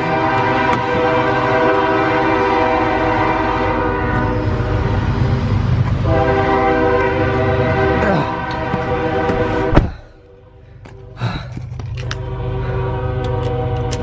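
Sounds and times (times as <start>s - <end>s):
train horn blast: 0.0s - 14.0s
train rumbling: 0.0s - 14.0s.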